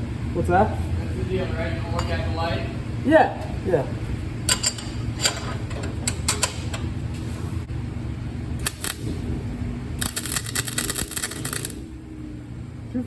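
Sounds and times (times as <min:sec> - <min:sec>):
welding arc crackling: 0:08.6 - 0:09.1, 0:10.0 - 0:11.8.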